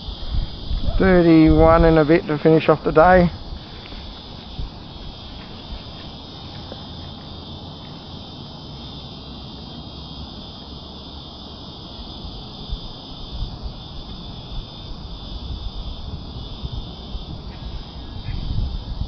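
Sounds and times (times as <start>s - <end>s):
wind rumble on microphone: 0.0s - 7.4s, 12.0s - 19.0s
cicada chorus buzzing: 0.0s - 19.0s.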